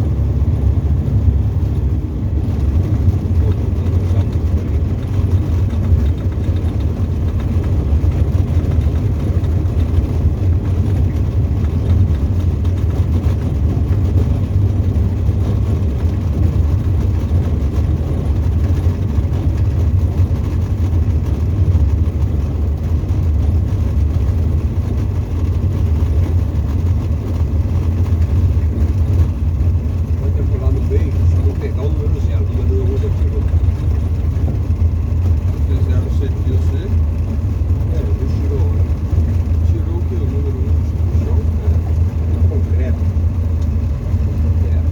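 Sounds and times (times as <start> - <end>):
aircraft engine and propeller drone: 0.0 - 44.9.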